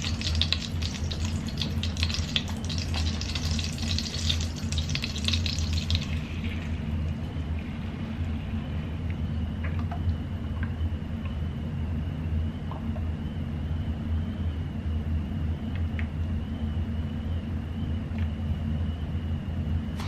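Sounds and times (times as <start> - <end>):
butter sizzling in a pan: 0.0 - 6.3
steady low hum: 0.0 - 20.0.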